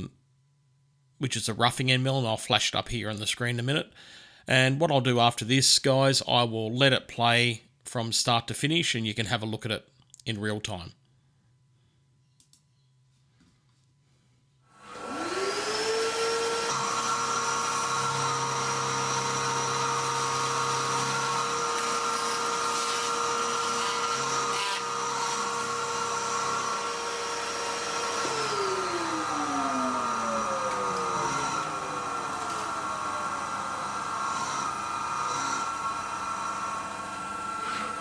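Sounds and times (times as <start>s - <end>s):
milling machine spindle whine: 15.0s - 38.0s.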